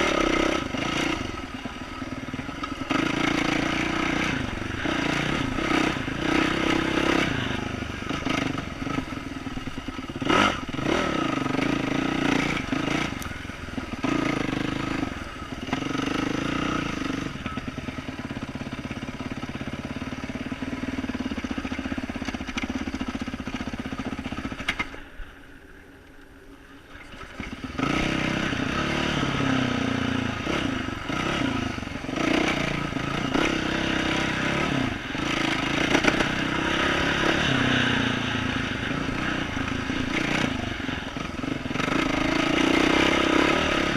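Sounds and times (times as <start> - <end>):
dirt bike engine revving: 0.0 - 25.0, 27.2 - 43.9.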